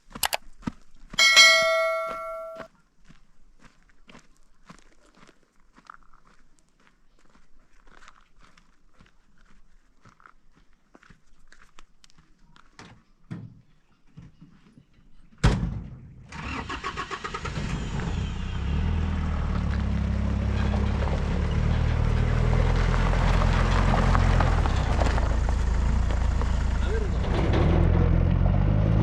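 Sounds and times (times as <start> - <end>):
engine starting and running: 16.3 - 29.0.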